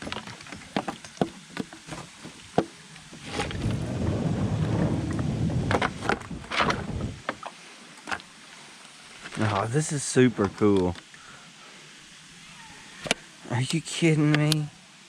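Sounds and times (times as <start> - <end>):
rumbling rushing noise: 3.2 - 7.3.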